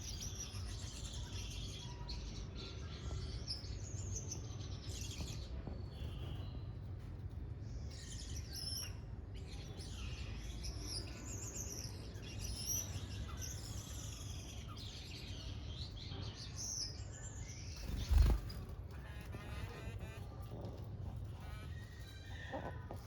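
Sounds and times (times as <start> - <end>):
small birds chirping and twittering: 0.0 - 23.0.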